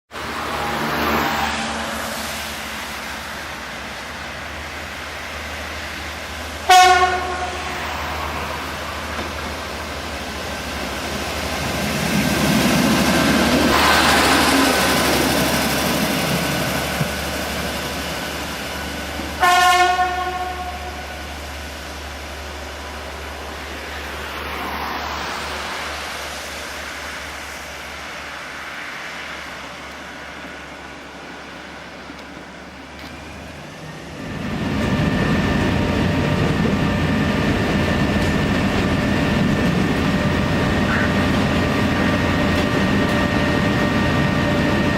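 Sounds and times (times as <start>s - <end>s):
train running noise: 0.1s - 44.9s
train signal blasts: 6.7s - 8.4s, 19.4s - 21.3s, 40.2s - 42.5s.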